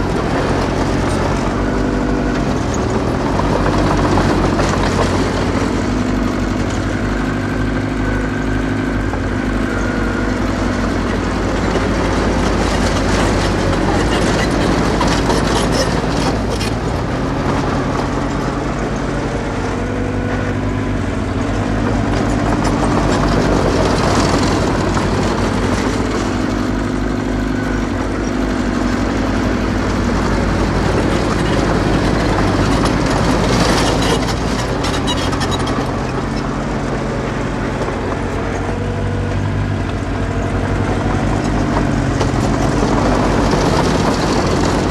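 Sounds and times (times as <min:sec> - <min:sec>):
bulldozer diesel engine: 0:00.0 - 0:44.9
metal tracks clanking: 0:11.0 - 0:18.2, 0:30.3 - 0:38.8.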